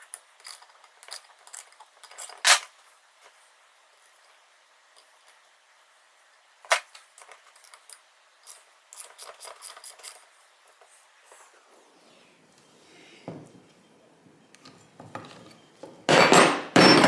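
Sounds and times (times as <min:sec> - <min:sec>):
metal parts and tools clicking: 0:00.1 - 0:02.7, 0:07.2 - 0:10.3.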